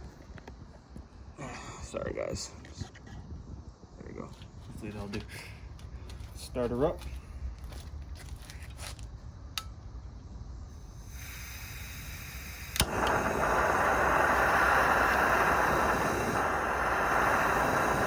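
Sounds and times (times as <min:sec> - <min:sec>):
soft gas hiss: 0:09.6 - 0:18.0
gas burner rushing: 0:10.7 - 0:18.0
sharp igniter click: 0:10.9 - 0:18.0.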